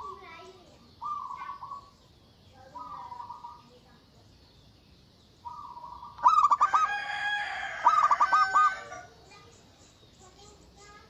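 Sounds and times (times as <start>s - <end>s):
dove cooing: 0.0s - 2.0s, 2.6s - 3.8s, 5.4s - 9.4s
harsh bird call: 0.0s - 2.0s, 5.4s - 9.2s.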